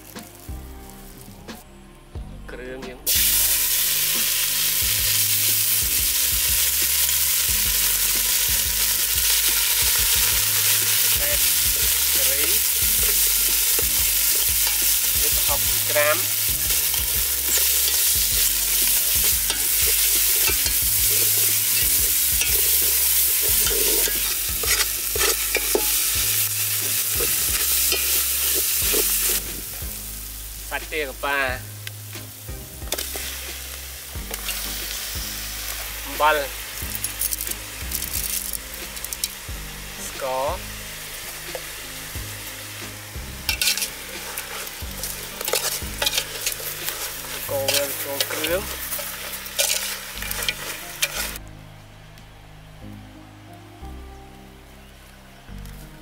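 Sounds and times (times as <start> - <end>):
paste sizzling in hot oil: 3.1 - 51.4
metal spoon scraping a pot: 16.6 - 29.4, 43.5 - 51.4.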